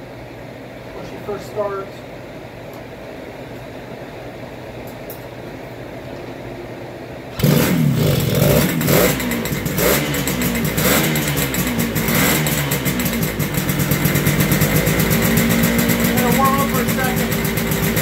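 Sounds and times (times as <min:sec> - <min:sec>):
motorcycle engine revving: 0:07.3 - 0:18.0.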